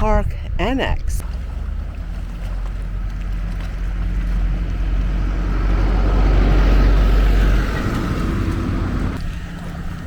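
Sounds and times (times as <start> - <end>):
vehicle passing by: 1.2 - 10.0.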